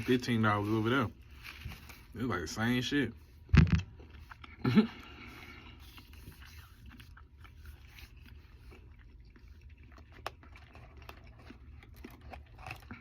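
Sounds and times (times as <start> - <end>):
person chewing food: 3.1 - 13.0.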